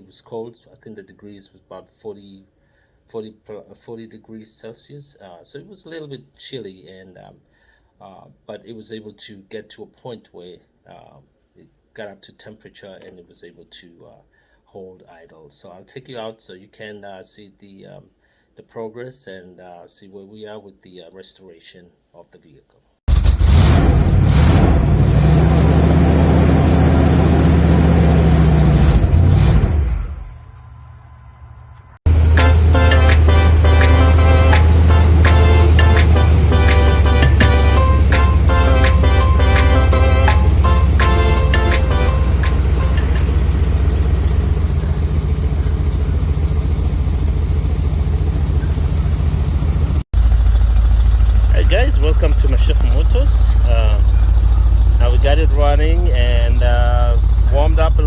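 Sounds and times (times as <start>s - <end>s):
car engine idling: 32.1s - 49.3s, 50.2s - 58.0s
car engine idling loudly: 50.2s - 58.0s.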